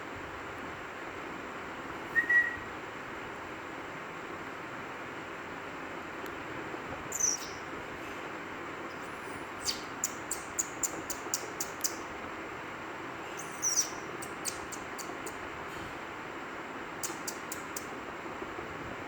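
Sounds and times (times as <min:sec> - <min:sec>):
background hiss: 0:00.0 - 0:19.0
baby bird chirping: 0:07.1 - 0:07.7, 0:08.9 - 0:12.1, 0:13.3 - 0:15.4, 0:17.0 - 0:17.9.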